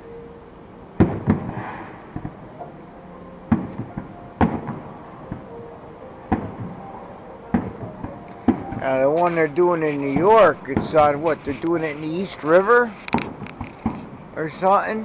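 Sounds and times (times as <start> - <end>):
distant fireworks booming: 1.0 - 14.4.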